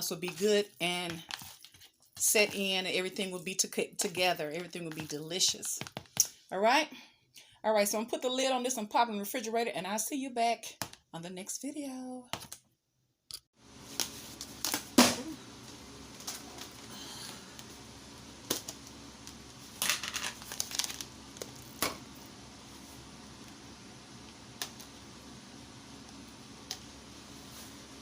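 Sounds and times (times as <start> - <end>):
crinkling and rustling: 0.0 - 2.6, 18.4 - 22.0
steady low hum: 13.6 - 28.0.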